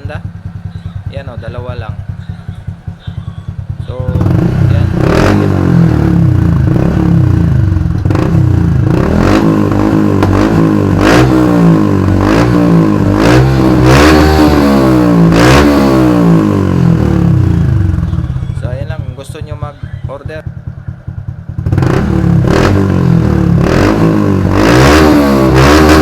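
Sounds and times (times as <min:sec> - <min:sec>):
exhaust cracks: 0:00.0 - 0:19.0
motorcycle engine revving: 0:00.0 - 0:26.0.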